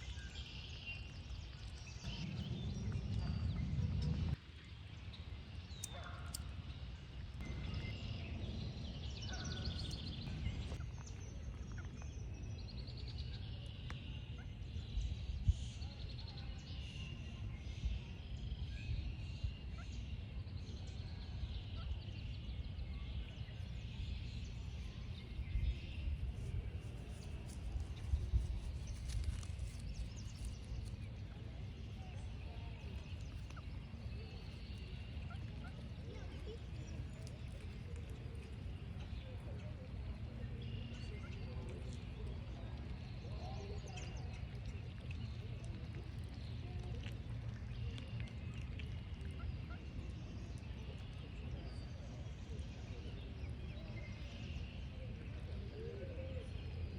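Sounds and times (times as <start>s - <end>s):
birds chirping and trilling: 0.0s - 15.2s
low outdoor rumble: 0.0s - 56.9s.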